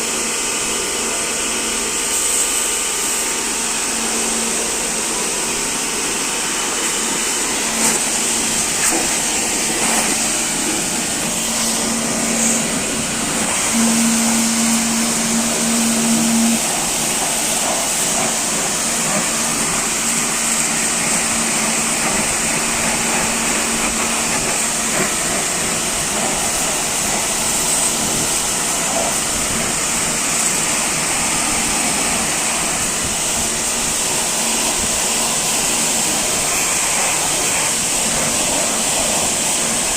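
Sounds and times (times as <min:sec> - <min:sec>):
motor-driven machine running: 0:01.5 - 0:39.9.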